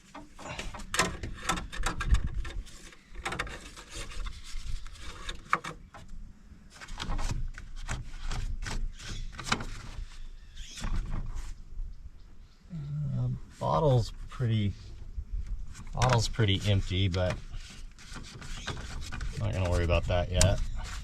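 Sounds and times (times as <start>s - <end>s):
scraping of parts: 0.0s - 6.1s.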